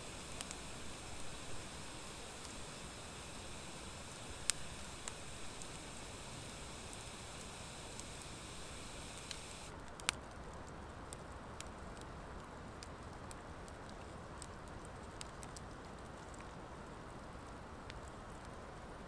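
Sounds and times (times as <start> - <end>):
campfire crackling: 0.0 - 10.8.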